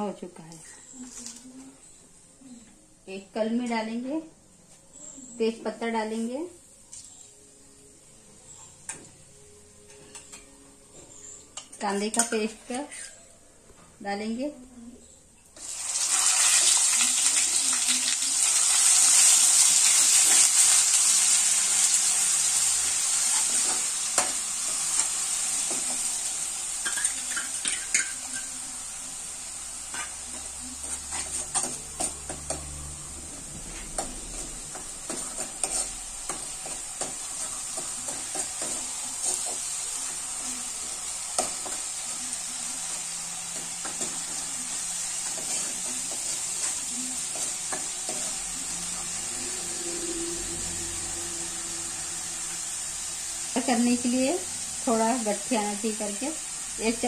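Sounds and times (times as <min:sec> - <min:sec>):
paste sizzling in hot oil: 0:15.6 - 0:32.6, 0:34.0 - 0:49.9.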